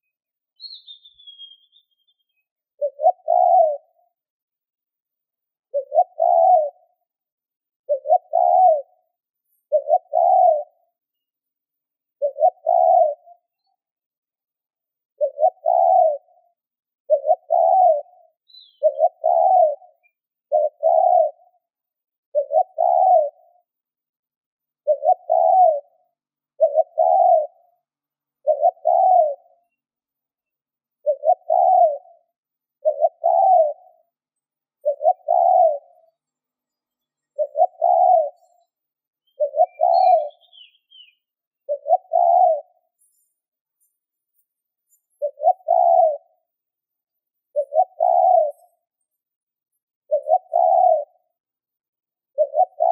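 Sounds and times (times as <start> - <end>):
dove cooing: 2.8 - 4.2, 5.7 - 7.1, 7.8 - 10.9, 12.2 - 13.7, 15.2 - 21.7, 22.3 - 23.7, 24.8 - 29.8, 31.0 - 36.2, 37.4 - 43.3, 45.0 - 46.5, 47.5 - 49.0, 50.1 - 51.5, 52.3 - 52.9.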